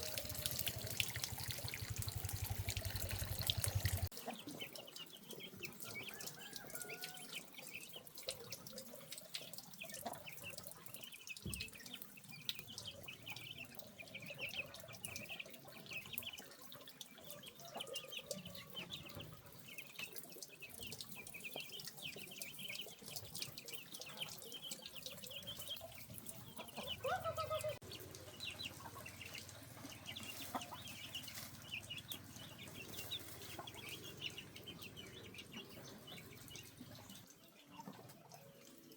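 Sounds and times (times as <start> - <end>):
faint water trickle: 0.0 - 38.9
chickens clucking: 12.8 - 20.1, 20.8 - 38.8.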